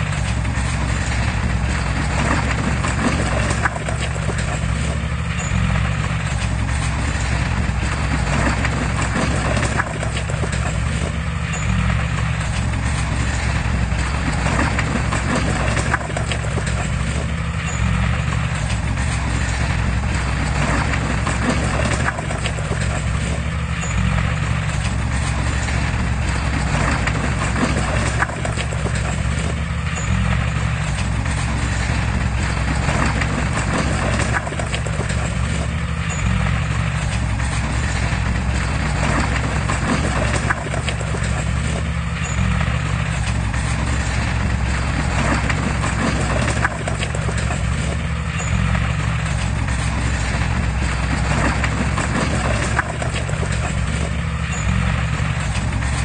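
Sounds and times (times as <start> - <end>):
diesel engine drone: 0.0 - 56.0
rhythmic metallic clatter: 0.0 - 56.0.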